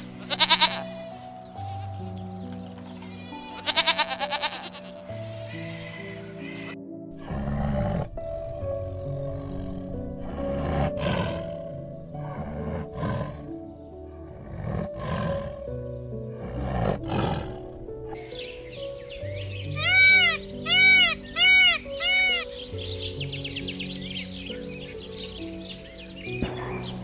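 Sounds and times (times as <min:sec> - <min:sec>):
background music with held notes: 0:00.0 - 0:27.0
harsh animal calls: 0:19.8 - 0:22.5.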